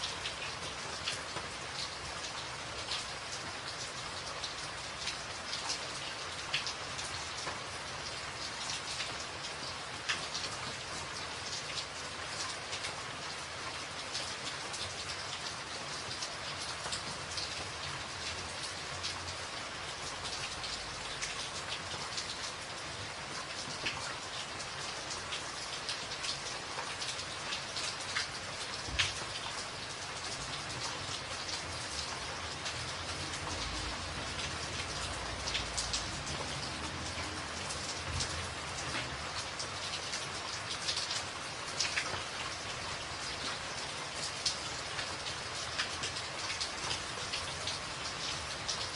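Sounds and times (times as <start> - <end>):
rain on a tin roof: 0.0 - 48.9.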